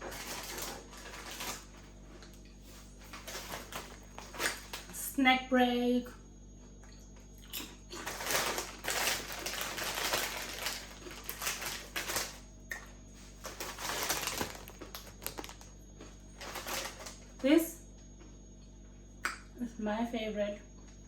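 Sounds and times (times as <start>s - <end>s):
packet crinkling: 0.0s - 2.4s, 3.0s - 5.0s, 7.9s - 12.5s, 13.3s - 15.8s, 16.4s - 17.4s
crunchy snack being eaten: 6.8s - 12.9s, 13.5s - 17.4s.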